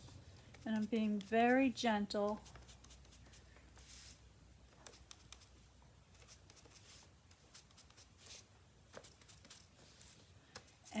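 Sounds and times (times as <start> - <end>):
ink sponge dabbing paper: 0.0 - 4.2.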